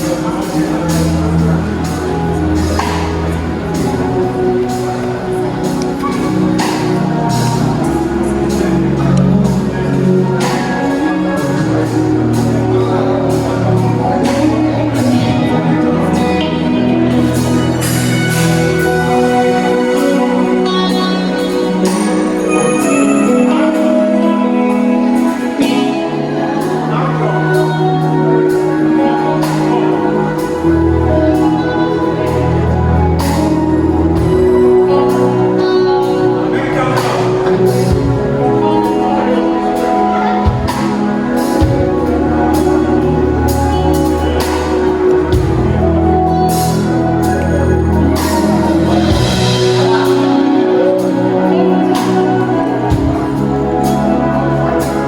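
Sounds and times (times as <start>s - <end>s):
soft beat: 0.0s - 24.7s
live band music: 0.0s - 55.0s
person singing: 0.0s - 55.0s
sustained synth chords: 0.0s - 55.0s.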